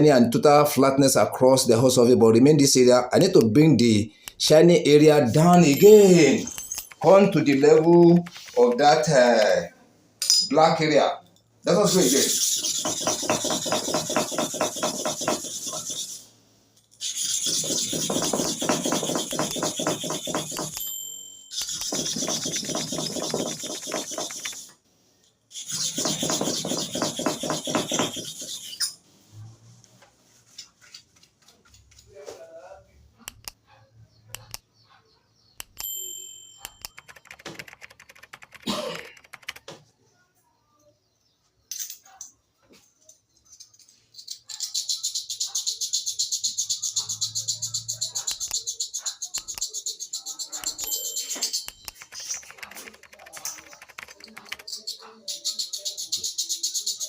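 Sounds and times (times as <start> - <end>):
ringing metal clink: 10.2 - 10.6, 20.8 - 21.7, 35.8 - 36.9, 50.8 - 52.0
blade grinding on sharpening stone: 12.0 - 16.3, 17.0 - 20.9, 21.5 - 24.7, 25.5 - 29.0.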